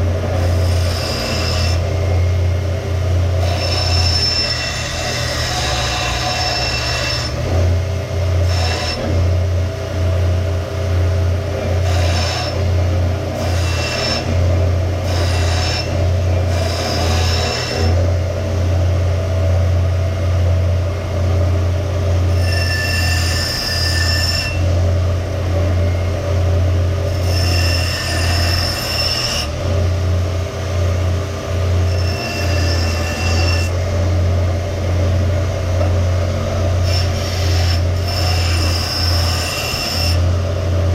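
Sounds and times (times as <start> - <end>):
electric grinder running: 0.0 - 9.6, 11.4 - 18.8, 30.8 - 40.9
metal squealing on grinder: 0.1 - 2.6, 3.2 - 9.4, 11.5 - 18.2, 22.2 - 30.0, 31.6 - 40.9.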